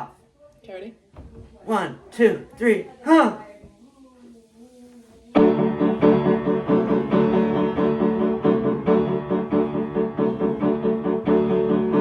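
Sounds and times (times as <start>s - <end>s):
keyboard playing chords: 5.4s - 12.0s.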